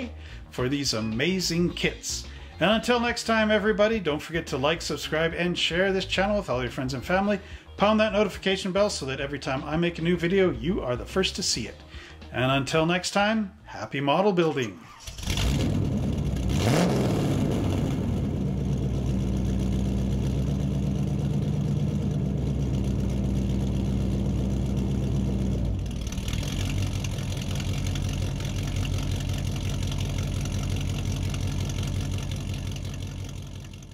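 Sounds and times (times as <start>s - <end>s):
car engine idling: 15.0s - 33.9s.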